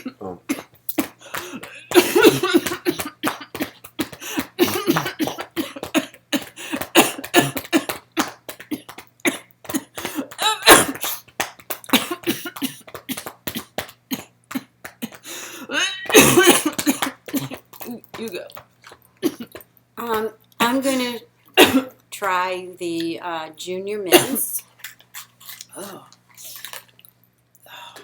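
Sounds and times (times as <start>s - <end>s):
person coughing: 0.0s - 11.2s, 11.9s - 18.0s, 19.2s - 19.6s, 21.6s - 22.0s, 24.1s - 24.5s.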